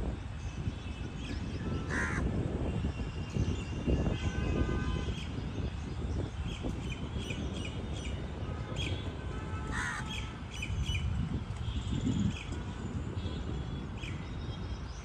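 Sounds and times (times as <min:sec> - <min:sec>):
birds calling: 0:01.8 - 0:02.2, 0:09.7 - 0:11.0.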